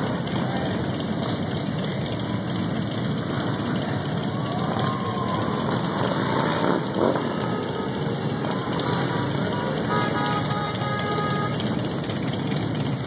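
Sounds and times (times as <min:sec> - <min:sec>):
crowd voices: 0:00.0 - 0:13.0
motorcycle engines passing: 0:00.0 - 0:13.0.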